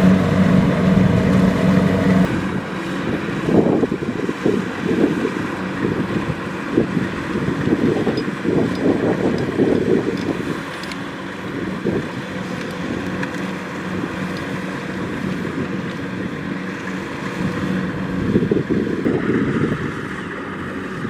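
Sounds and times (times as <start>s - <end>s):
combine harvester engine hum: 0.0s - 21.0s
wind buffeting microphone: 0.0s - 21.0s.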